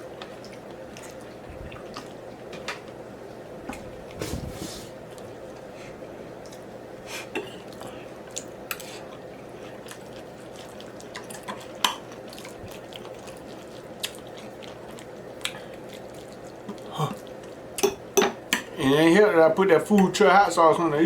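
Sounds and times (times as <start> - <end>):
faint steady hum: 0.0 - 21.0
person chewing with mouth smacks: 0.2 - 3.0, 6.4 - 17.6.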